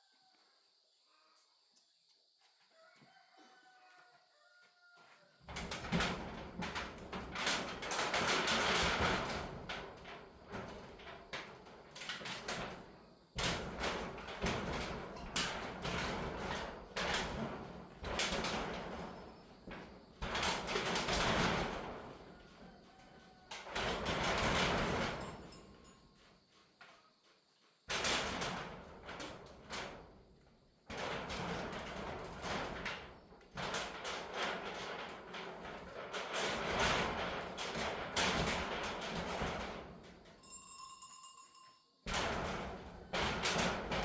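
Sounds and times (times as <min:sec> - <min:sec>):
rooster crowing faintly: 0:00.0 - 0:01.3, 0:02.6 - 0:05.5, 0:22.1 - 0:23.8.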